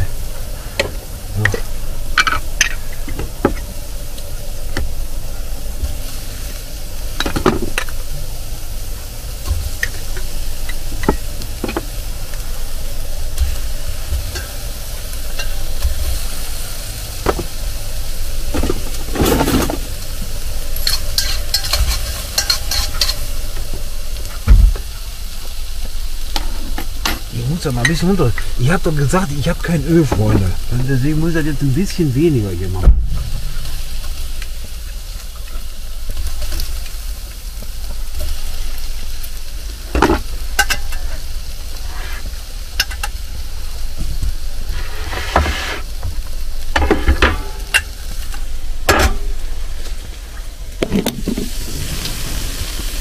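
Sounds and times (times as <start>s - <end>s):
potatoes sizzling in a pot: 0.0s - 53.0s
utensil scraping and clinking on pot: 20.8s - 23.3s
low thump: 32.8s - 33.4s.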